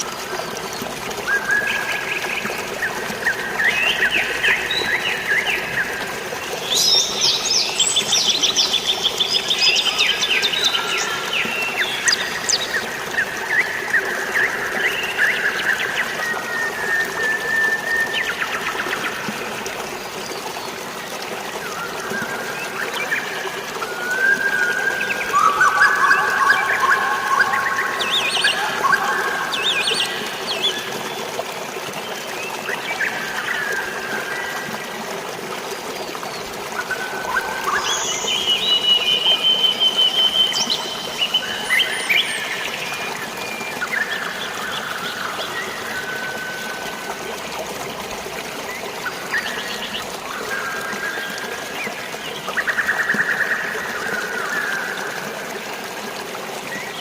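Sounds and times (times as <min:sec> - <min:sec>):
flowing trickling water: 0:00.0 - 0:57.0
birds calling and trilling: 0:00.1 - 0:34.7.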